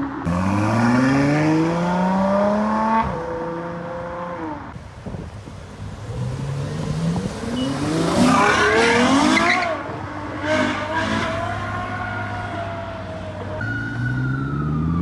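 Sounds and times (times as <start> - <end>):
sports car engine accelerating: 0.2 - 4.8.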